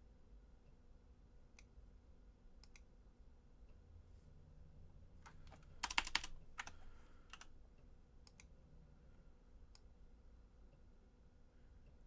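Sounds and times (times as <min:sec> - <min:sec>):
keyboard keys tapping: 0:05.3 - 0:07.4.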